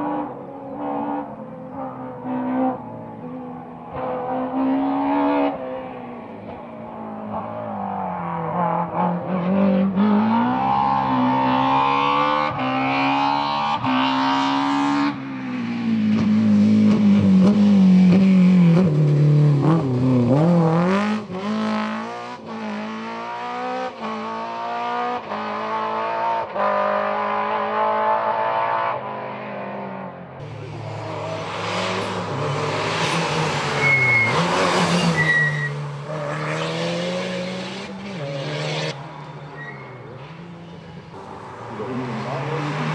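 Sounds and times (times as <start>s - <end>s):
rally car engine revving: 0.0s - 42.9s.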